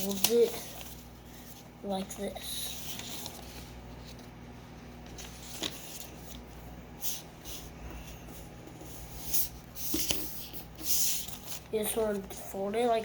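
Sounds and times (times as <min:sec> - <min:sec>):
paper crinkling: 0:00.0 - 0:06.5.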